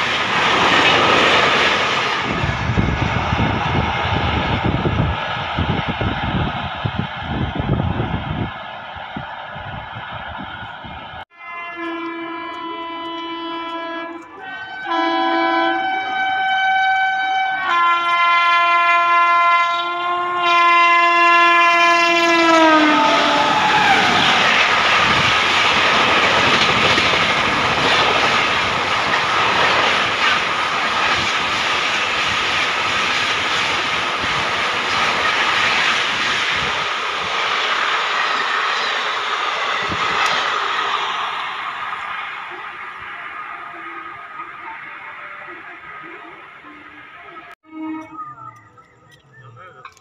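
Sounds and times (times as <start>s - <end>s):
train wheels roaring on rail: 0.0s - 48.6s
locomotive multi-tone horn: 11.3s - 25.2s, 42.8s - 49.0s.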